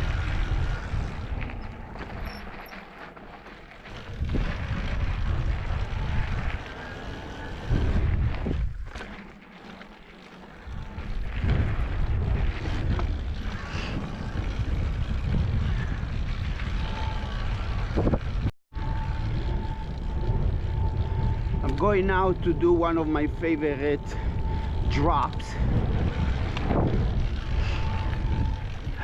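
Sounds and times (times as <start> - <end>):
wind buffeting microphone: 0.0 - 2.8, 3.9 - 9.0, 10.6 - 29.0
bike knocks and rattles: 0.0 - 6.8.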